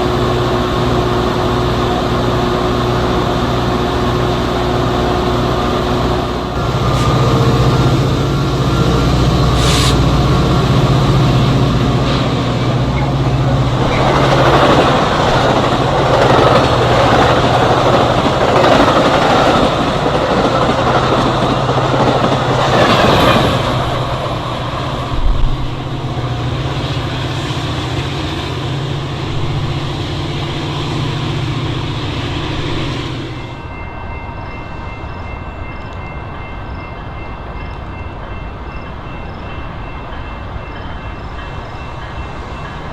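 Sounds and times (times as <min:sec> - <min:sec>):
diesel locomotive drone: 0:00.0 - 0:42.9
wheels clattering on rail: 0:06.6 - 0:28.2.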